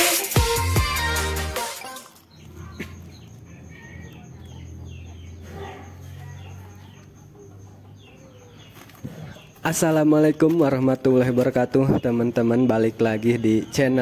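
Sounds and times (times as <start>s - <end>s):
birds chirping: 0.5s - 14.0s.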